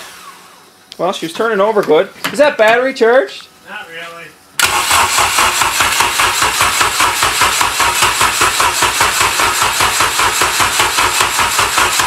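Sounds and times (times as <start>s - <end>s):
engine cranking without firing: 4.6s - 12.0s.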